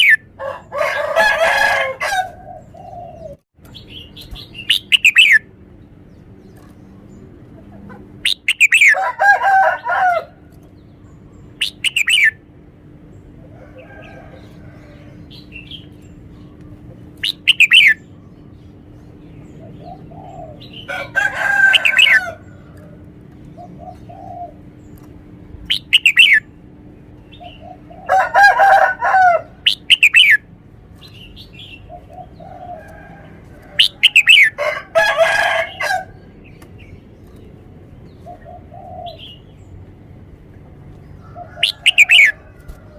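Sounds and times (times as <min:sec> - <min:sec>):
bird singing whistled phrases: 0:04.6 - 0:05.4, 0:17.2 - 0:18.0, 0:25.7 - 0:26.4.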